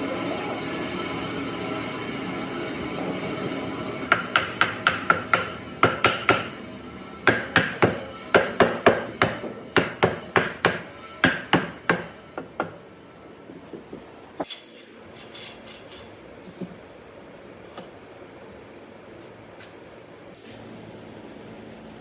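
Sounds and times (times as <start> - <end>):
steady hum: 0.0 - 19.6
ringing hammer strikes: 4.1 - 12.8.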